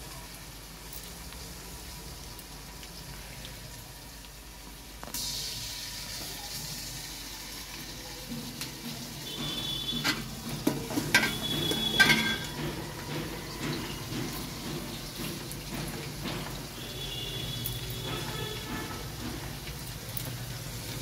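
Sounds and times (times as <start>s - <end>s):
food sizzling in a pot: 0.0s - 21.0s
metal ladle clanking on pot: 9.3s - 17.2s.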